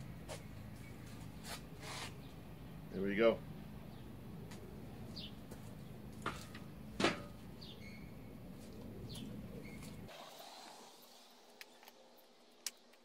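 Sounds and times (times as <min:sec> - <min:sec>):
birds chirping: 0:00.0 - 0:10.1.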